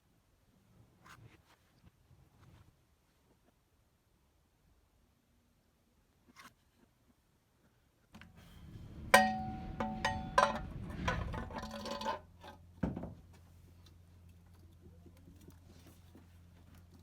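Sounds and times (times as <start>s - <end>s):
metal rattling: 8.6s - 12.5s
metal knock: 9.0s - 12.2s.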